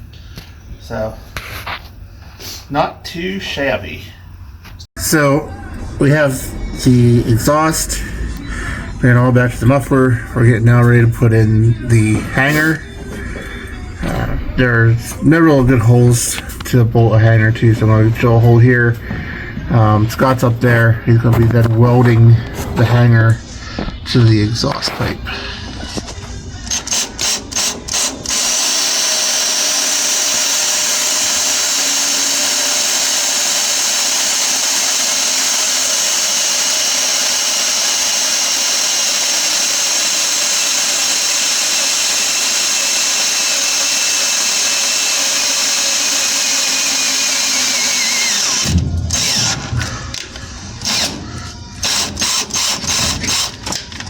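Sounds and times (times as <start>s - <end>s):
electric drill boring: 5.7s - 16.7s, 23.2s - 54.0s.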